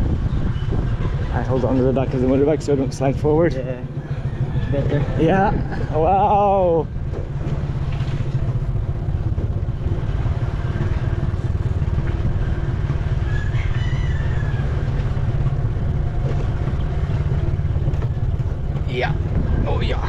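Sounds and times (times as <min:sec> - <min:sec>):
motorbike engine running: 0:00.0 - 0:20.0
wind buffeting microphone: 0:00.0 - 0:20.0
rooster crowing: 0:04.0 - 0:05.2, 0:13.2 - 0:14.9.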